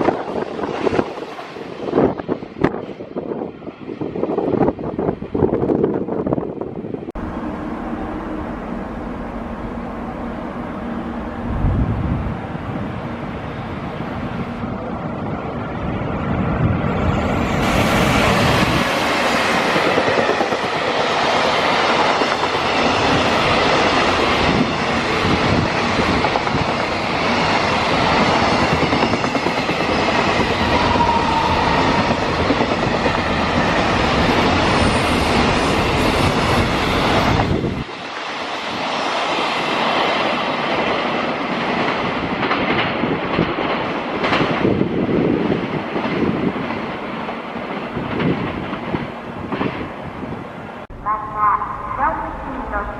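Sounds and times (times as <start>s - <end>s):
train low rumble: 0.0s - 52.9s
train wheels clattering: 17.6s - 50.0s.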